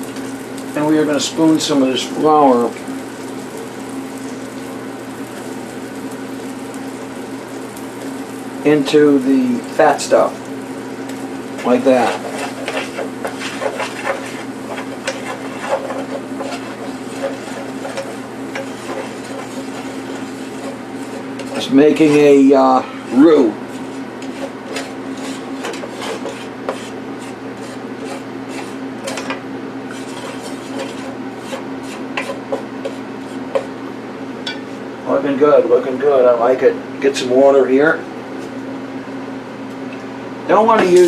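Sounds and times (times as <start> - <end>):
steady low hum: 0.0 - 41.0
spoon scraping frying pan: 11.1 - 33.8.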